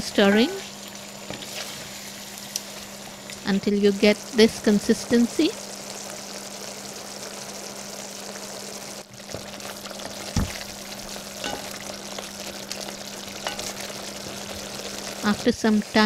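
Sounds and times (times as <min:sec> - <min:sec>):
curry sizzling in a pot: 0:00.0 - 0:16.0.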